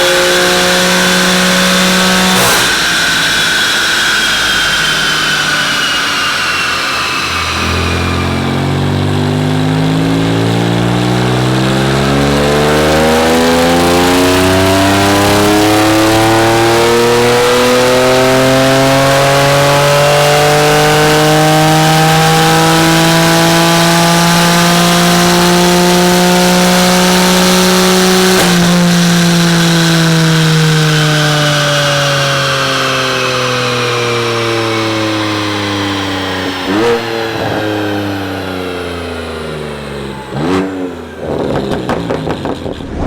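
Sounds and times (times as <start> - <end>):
car engine pulling under full load: 0.0 - 43.0.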